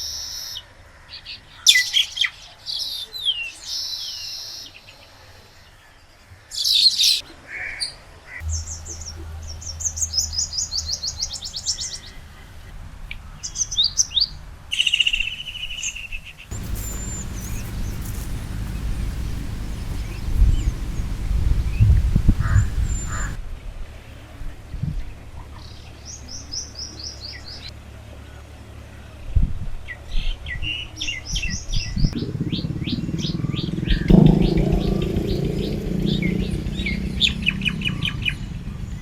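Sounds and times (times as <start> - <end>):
bird buzzy trill: 16.5 - 23.4
birds chirping and whistling: 16.5 - 23.4.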